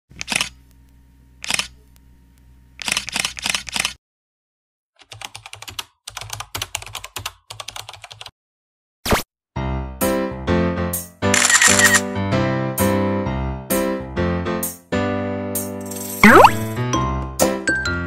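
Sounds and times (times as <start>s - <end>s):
rapid keyboard typing clicks: 2.8s - 4.0s, 5.0s - 8.3s.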